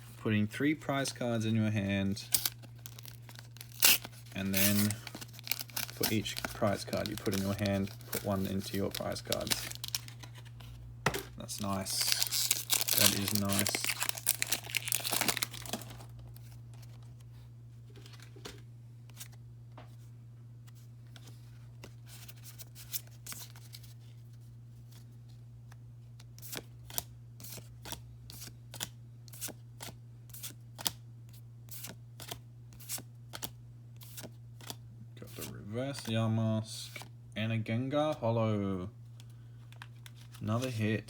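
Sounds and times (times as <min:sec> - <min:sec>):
steady low hum: 0:00.0 - 0:41.0
plastic wrapper crinkling: 0:02.2 - 0:10.8, 0:11.4 - 0:16.4
cards being flicked through: 0:02.3 - 0:16.4.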